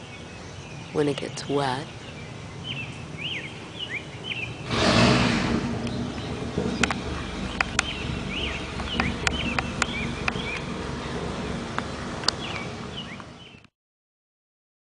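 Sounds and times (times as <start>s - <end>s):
small birds chirping: 0.0s - 13.7s
bees humming: 4.7s - 13.7s
sharp clicks: 6.7s - 10.8s, 11.7s - 13.7s.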